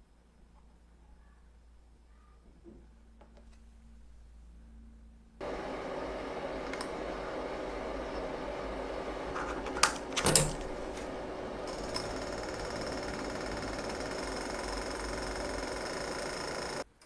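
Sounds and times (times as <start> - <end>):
high whine: 5.4 - 16.8.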